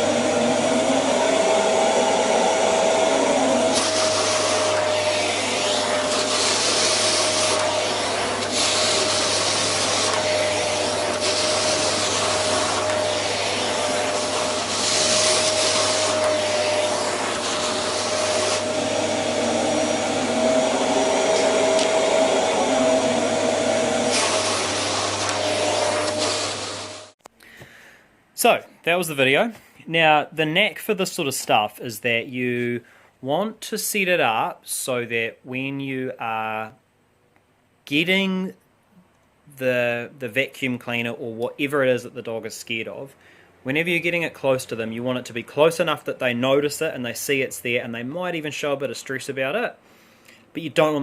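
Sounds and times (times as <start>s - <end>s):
vacuum cleaner running: 0.0s - 27.2s.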